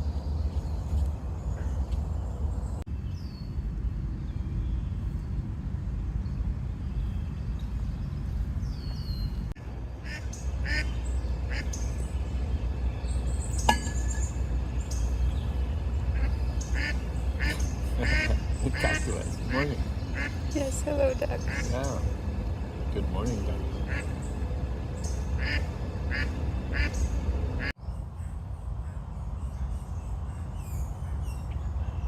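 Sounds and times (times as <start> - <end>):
low rumble: 0.0 - 27.8
small birds chirping: 0.0 - 32.0
ducks quacking: 10.0 - 11.8, 16.0 - 22.2, 22.9 - 24.2, 25.2 - 27.7.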